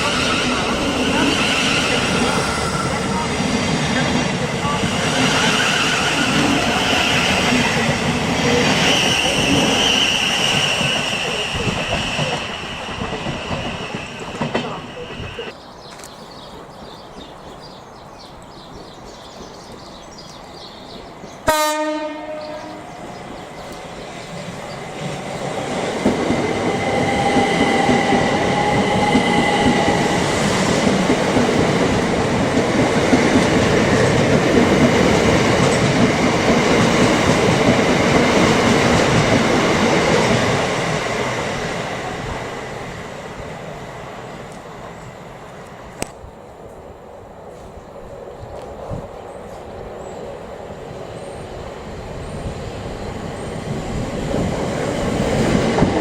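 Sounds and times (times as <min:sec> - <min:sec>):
train passing with rumble: 0:00.0 - 0:15.6, 0:16.4 - 0:56.0
train horn blast: 0:21.4 - 0:23.0.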